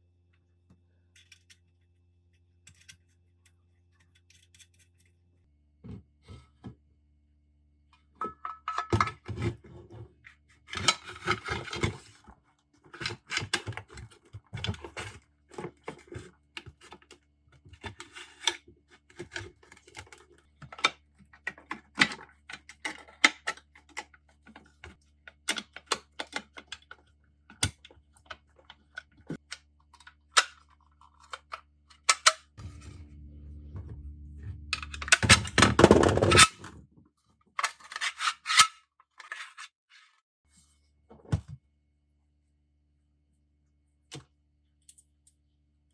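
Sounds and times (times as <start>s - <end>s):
low hum: 32.6s - 36.9s.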